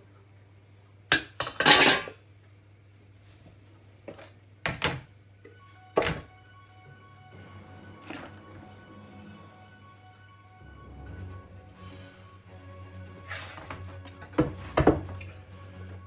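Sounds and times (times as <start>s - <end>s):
pots and pans clattering: 1.1s - 2.2s, 13.4s - 15.2s.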